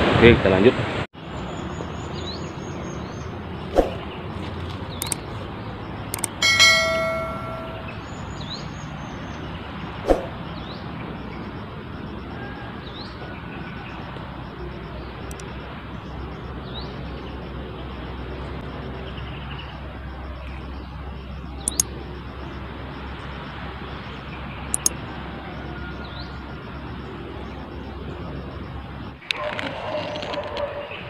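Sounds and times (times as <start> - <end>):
outdoor background noise: 0.0 - 31.0
sharp clicks: 4.9 - 5.3, 5.9 - 7.7, 11.2 - 24.1, 24.7 - 25.1
faint bird chirps: 4.9 - 29.2.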